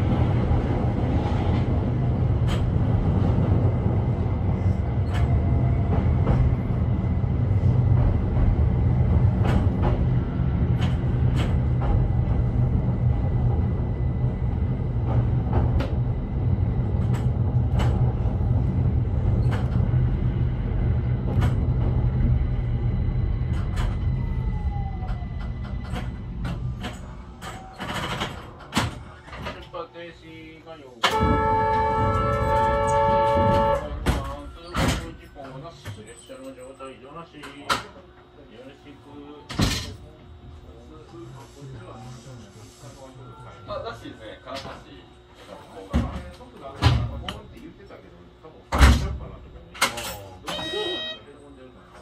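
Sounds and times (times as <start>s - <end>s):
train low rumble: 0.0s - 52.0s
faint high steady tone: 50.4s - 51.7s.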